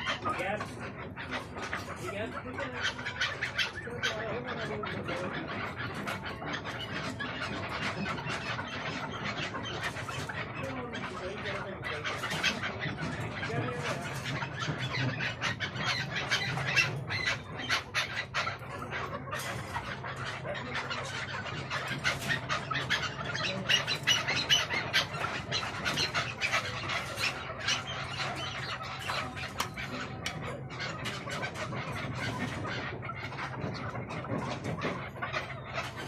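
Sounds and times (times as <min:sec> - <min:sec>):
partridges squawking: 0:00.0 - 0:36.0.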